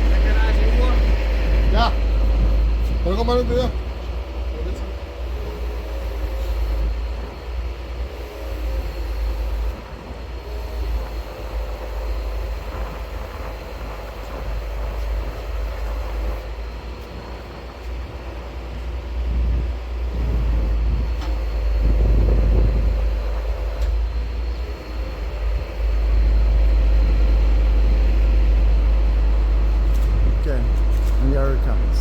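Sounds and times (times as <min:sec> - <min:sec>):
crane engine rumbling: 0:00.0 - 0:32.0.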